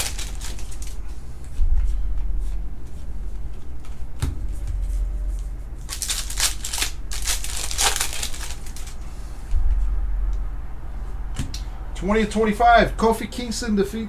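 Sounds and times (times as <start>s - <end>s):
foil wrapper crinkling: 0.0s - 1.1s, 5.8s - 9.1s.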